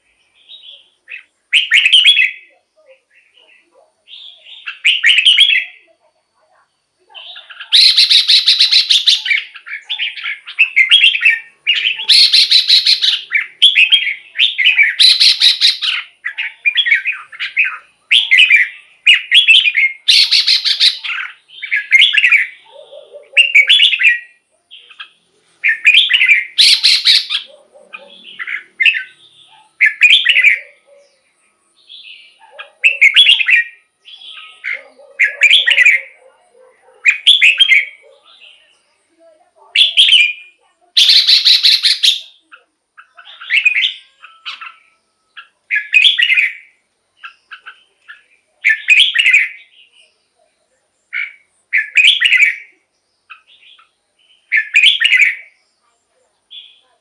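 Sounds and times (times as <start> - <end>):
bird singing whistled phrases: 0.4 - 2.5, 4.1 - 5.8, 7.2 - 22.6, 25.6 - 27.5, 32.8 - 36.2, 39.8 - 47.8, 48.7 - 49.7, 51.2 - 55.6.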